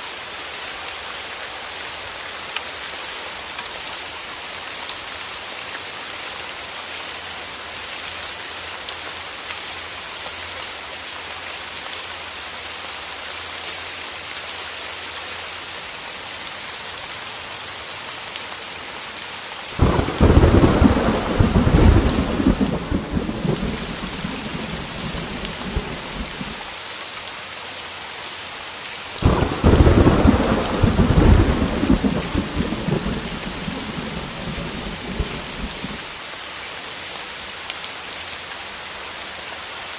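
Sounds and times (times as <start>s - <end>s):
heavy rain on a window: 0.0s - 39.9s
thunder rumbling: 19.8s - 26.6s, 29.2s - 36.1s.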